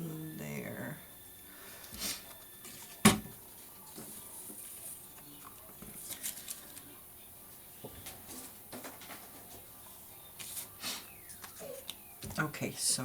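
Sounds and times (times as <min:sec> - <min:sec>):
paper rustling: 0:02.7 - 0:07.0, 0:10.4 - 0:12.0.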